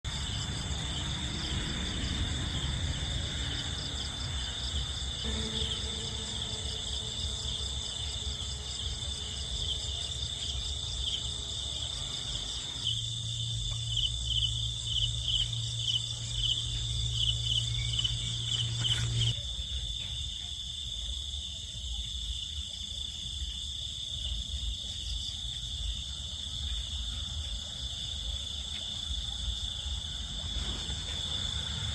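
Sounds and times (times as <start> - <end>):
crickets chirping: 0.0 - 31.9
low steady hum: 0.1 - 19.5.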